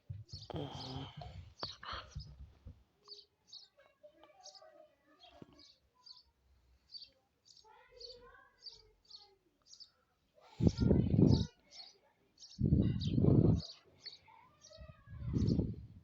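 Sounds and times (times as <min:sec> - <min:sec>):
bird chirping: 0:00.1 - 0:02.4.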